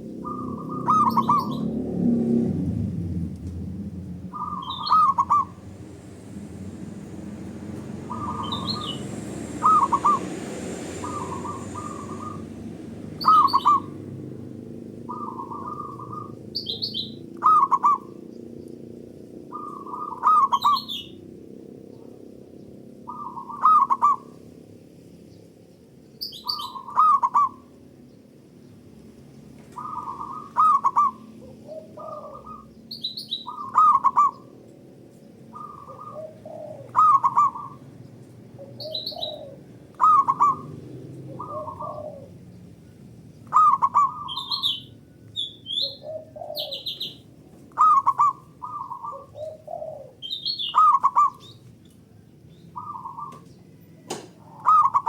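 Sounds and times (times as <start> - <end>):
doves cooing: 0.0 - 24.7, 26.4 - 27.9, 29.5 - 55.0
high bird chirps: 0.2 - 1.8, 4.3 - 5.6, 8.1 - 10.3, 11.0 - 12.5, 13.2 - 14.0, 15.1 - 18.2, 26.2 - 27.6, 29.7 - 31.3, 32.0 - 34.5, 36.9 - 37.8, 38.7 - 39.4, 40.0 - 40.8, 42.8 - 49.5, 50.2 - 51.7, 52.4 - 55.0.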